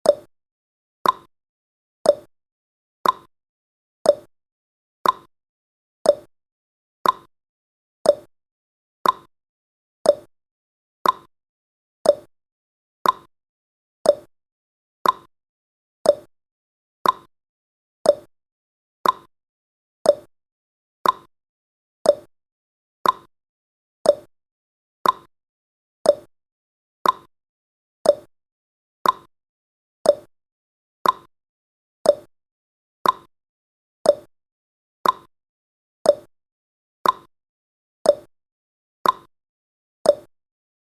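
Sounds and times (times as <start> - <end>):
clock ticking: 3.0 - 3.3, 5.0 - 5.3, 7.0 - 7.3, 9.0 - 9.3, 11.0 - 11.3, 13.0 - 13.3, 15.0 - 15.3, 16.1 - 16.3, 17.0 - 17.3, 19.0 - 19.3, 21.0 - 21.3, 22.1 - 22.3, 23.0 - 23.3, 24.1 - 24.3, 25.0 - 25.3, 26.1 - 26.3, 27.0 - 27.3, 28.0 - 28.3, 29.0 - 29.3, 30.1 - 30.3, 31.0 - 31.3, 32.1 - 32.3, 33.0 - 33.3, 34.1 - 34.3, 35.0 - 35.3, 37.0 - 37.3, 39.0 - 39.3, 40.1 - 40.3.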